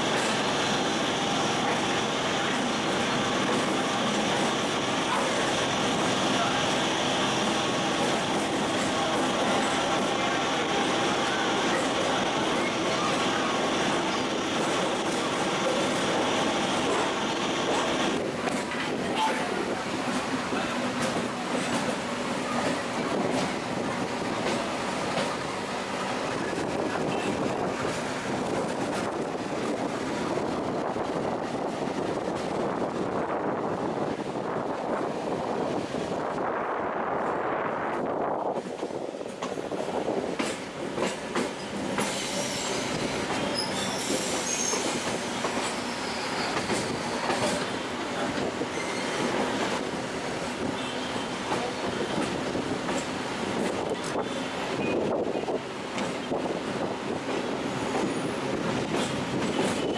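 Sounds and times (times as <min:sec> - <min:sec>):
train rolling rumble: 0:00.0 - 0:59.9
wheels clacking over rail joints: 0:40.3 - 0:54.9, 0:55.9 - 0:59.9
high wheel squeal: 0:42.2 - 0:47.3, 0:48.7 - 0:49.4.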